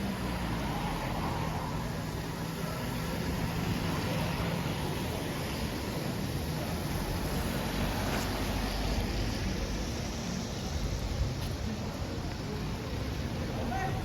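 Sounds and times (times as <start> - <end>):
low traffic rumble: 0.0 - 14.0.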